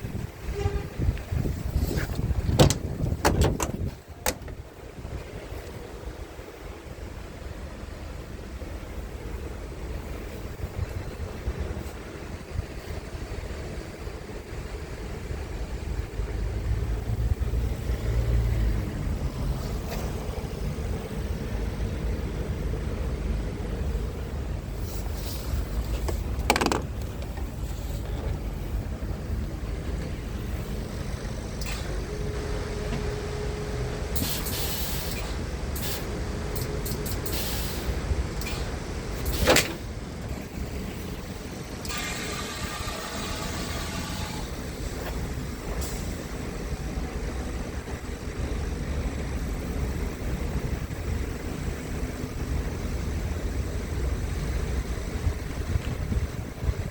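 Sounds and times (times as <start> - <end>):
truck engine rumbling: 0.0 - 56.9
hiss with faint whine: 3.9 - 26.4, 27.3 - 56.9.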